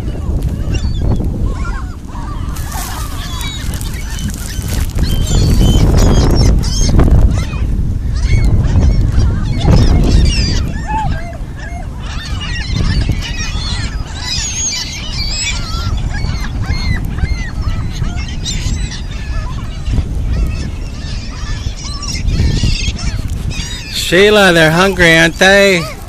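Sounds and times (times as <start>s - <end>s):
geese honking: 20.6s - 26.0s.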